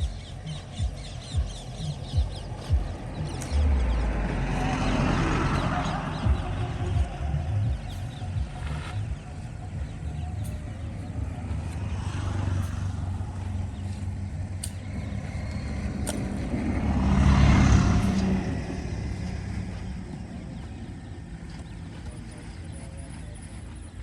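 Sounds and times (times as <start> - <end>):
vehicle engine passing: 0.0 - 24.0
sharp clicks: 2.3 - 3.7, 14.0 - 16.7.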